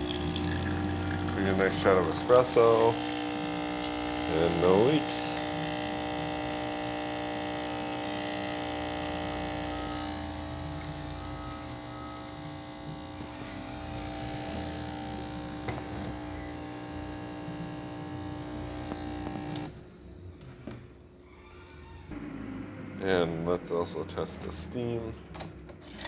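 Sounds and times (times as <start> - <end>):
espresso machine pump buzzing: 0.0 - 20.5.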